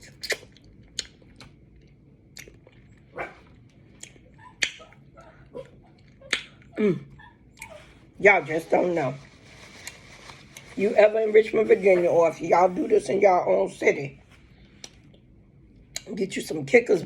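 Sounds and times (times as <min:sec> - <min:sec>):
clicks and smacks of eating: 0:00.0 - 0:05.0, 0:06.0 - 0:06.7, 0:14.8 - 0:15.3, 0:15.9 - 0:16.1
dog yelping: 0:04.3 - 0:08.0.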